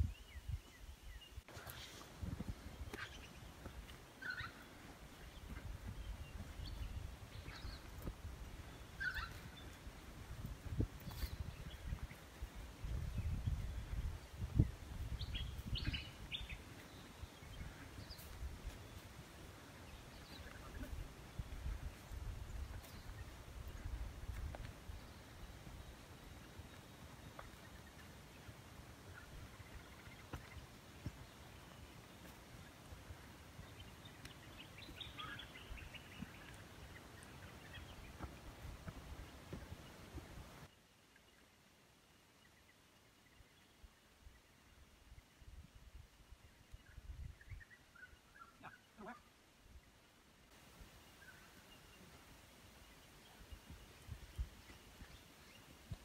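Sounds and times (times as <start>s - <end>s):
birds chirping: 0.0s - 41.6s, 50.0s - 56.0s
bird chirping: 2.8s - 9.9s, 13.1s - 24.0s, 33.6s - 38.4s.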